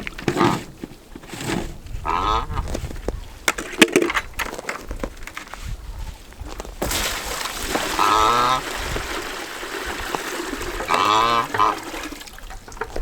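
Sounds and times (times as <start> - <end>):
goose honking: 2.0 - 2.7, 8.0 - 8.6, 10.9 - 11.9
water splashing into plastic tub: 6.8 - 13.0.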